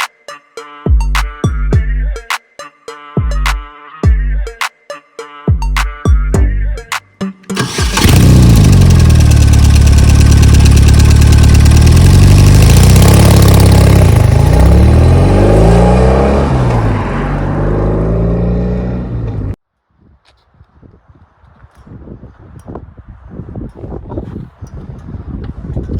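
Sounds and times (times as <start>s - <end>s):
motorcycle engine revving: 7.5s - 19.6s.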